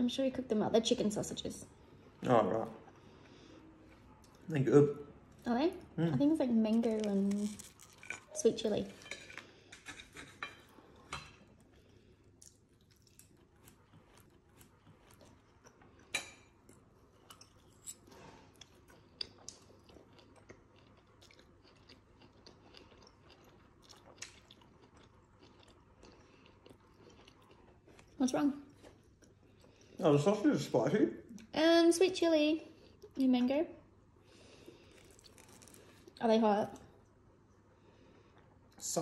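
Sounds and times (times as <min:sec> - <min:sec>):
person chewing food: 0:06.7 - 0:08.4, 0:09.0 - 0:30.0, 0:34.3 - 0:36.2.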